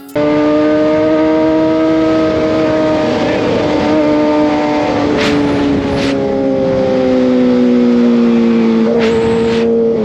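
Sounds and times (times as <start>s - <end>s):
motorcycle engine at high revs: 0.1s - 10.0s
wind noise: 2.2s - 10.0s.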